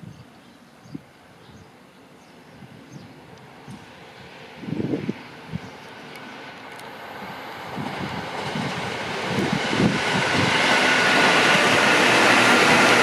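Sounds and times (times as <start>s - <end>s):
train passing hiss: 0.7s - 13.0s
train wheels rumbling: 2.7s - 13.0s.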